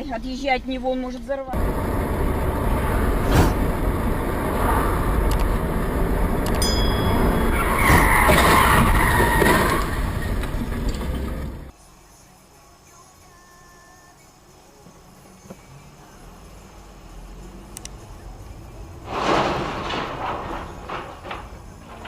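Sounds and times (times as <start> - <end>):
car road and engine noise: 0.0 - 22.0
car tyres skidding: 7.1 - 11.7, 18.8 - 22.0.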